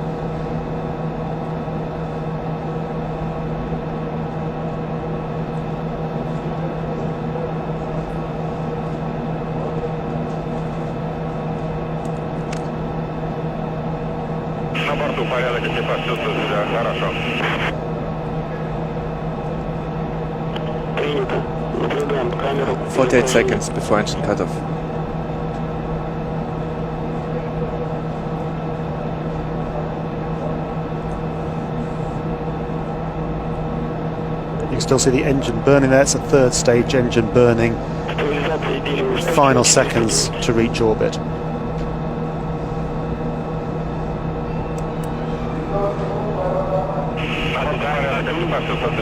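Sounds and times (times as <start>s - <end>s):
radio hum and hiss: 14.7s - 17.8s, 20.4s - 24.6s, 34.6s - 41.2s, 47.0s - 49.0s.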